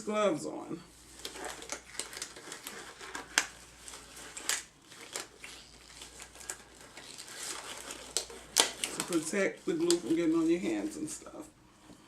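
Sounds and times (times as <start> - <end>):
gloves rustling and snapping: 1.0 - 11.2.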